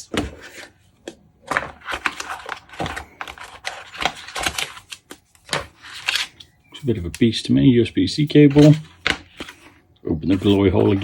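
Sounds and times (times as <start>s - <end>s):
packaging rustling: 1.4s - 6.6s.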